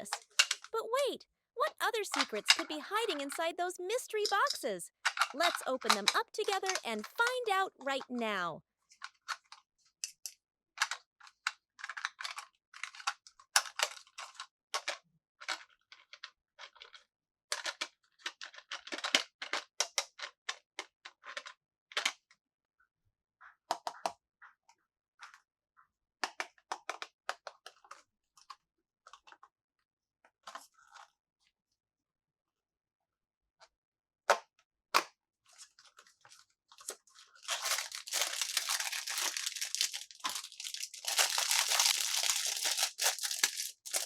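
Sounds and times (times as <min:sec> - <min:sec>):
plastic packaging crinkling: 0:01.9 - 0:03.3, 0:03.9 - 0:08.4, 0:35.8 - 0:44.0.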